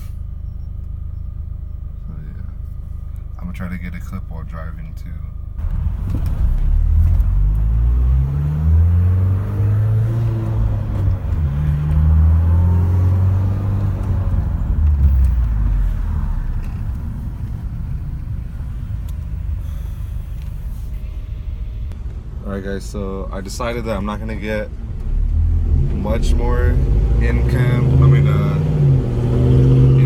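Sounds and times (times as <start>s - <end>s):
car engine accelerating through gears: 5.6s - 22.2s, 23.9s - 30.0s.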